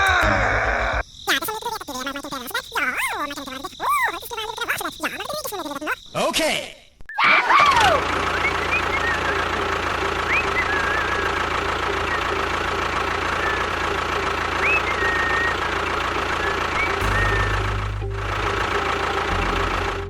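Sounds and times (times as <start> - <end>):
engine idling: 7.7 - 20.0.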